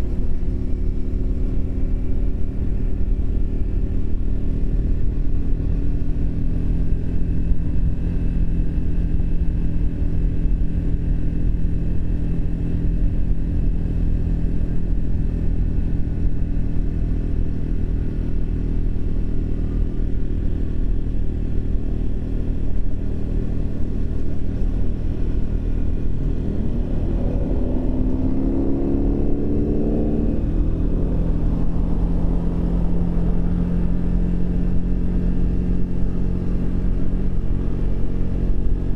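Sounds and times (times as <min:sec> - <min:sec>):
motorcycle engine running: 0:00.0 - 0:38.9
heavy low rumble: 0:18.3 - 0:38.9.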